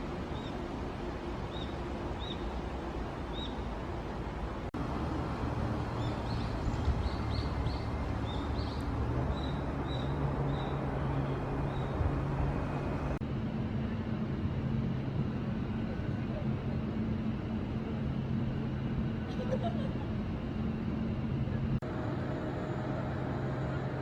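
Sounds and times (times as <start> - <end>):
low outdoor rumble: 0.0 - 24.0
bird chirping: 1.5 - 2.6, 3.3 - 3.7, 5.9 - 12.1.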